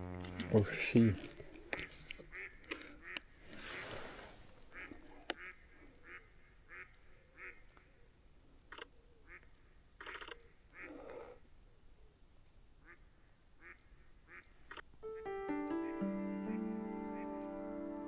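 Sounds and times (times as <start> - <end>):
brief rustling: 1.2 - 5.3.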